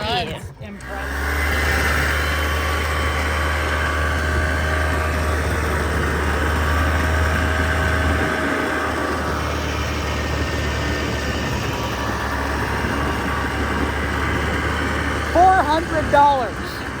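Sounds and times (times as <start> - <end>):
atv engine running: 0.0 - 17.0.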